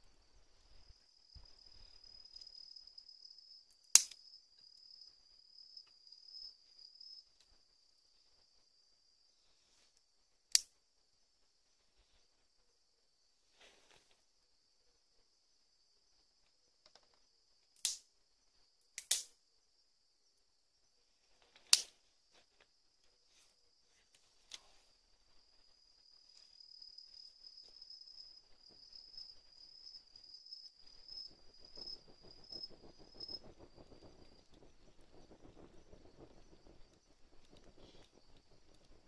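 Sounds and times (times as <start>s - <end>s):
sharp cracks or pops: 3.8s - 4.3s, 10.5s - 10.8s, 17.8s - 18.2s, 19.0s - 19.4s, 21.6s - 22.0s
high insect trill: 14.3s - 39.0s
low crackling noise: 20.9s - 39.0s.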